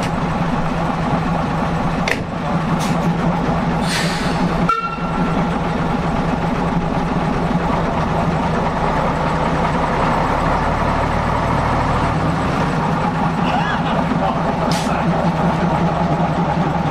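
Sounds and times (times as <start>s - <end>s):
diesel locomotive engine humming: 0.0s - 16.9s.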